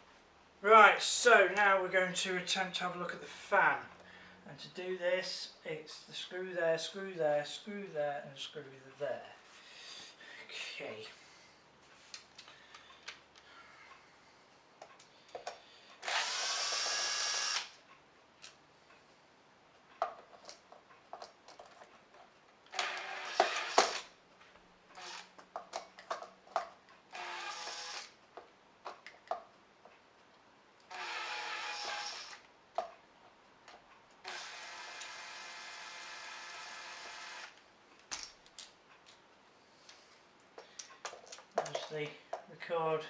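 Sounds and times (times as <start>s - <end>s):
cordless screwdriver whirring: 16.0s - 17.8s, 22.7s - 24.1s, 25.0s - 25.3s, 27.1s - 28.1s, 30.9s - 32.4s, 34.2s - 37.6s
clicks and taps of handling screws: 39.9s - 42.5s.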